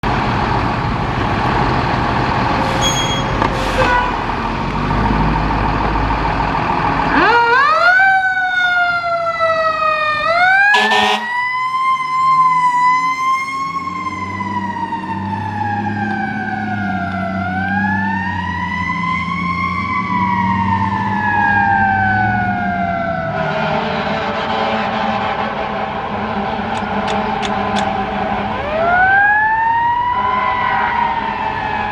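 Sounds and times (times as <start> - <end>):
fire truck engine rumbling: 0.0 - 31.9
fire truck siren wailing: 0.9 - 31.9.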